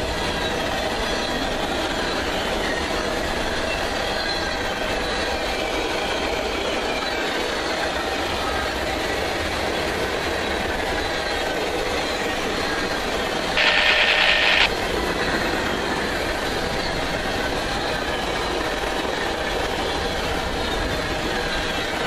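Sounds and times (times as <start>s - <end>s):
train wheels rumbling on rail: 0.0s - 13.6s, 14.8s - 22.0s
high-pitched screech: 13.6s - 14.7s.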